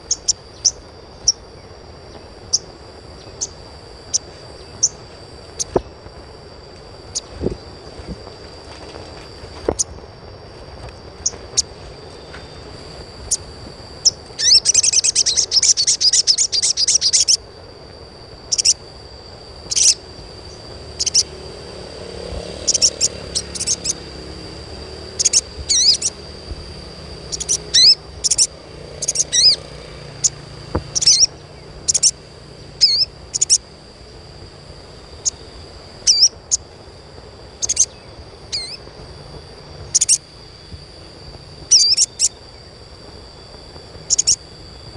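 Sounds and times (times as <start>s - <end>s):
bird chirping: 0.0s - 6.1s, 10.6s - 17.4s, 18.5s - 18.9s, 19.6s - 21.6s, 22.2s - 26.4s, 27.0s - 33.8s, 35.0s - 36.7s, 37.6s - 39.0s, 39.8s - 42.7s, 43.7s - 44.9s
fast rattling bird trill: 0.0s - 44.9s.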